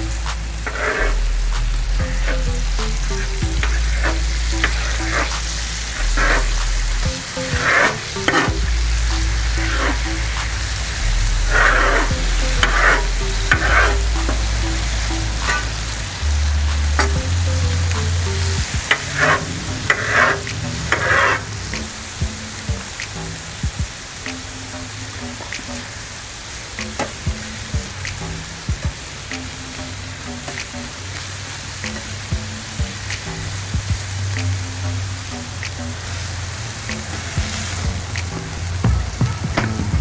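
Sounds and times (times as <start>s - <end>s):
background music with bass: 0.0s - 40.0s
meat sizzling on a griddle: 0.2s - 40.0s
knife and spatula scraping steel: 0.6s - 1.3s, 6.0s - 6.6s, 7.5s - 8.7s, 11.4s - 14.1s, 18.9s - 21.5s.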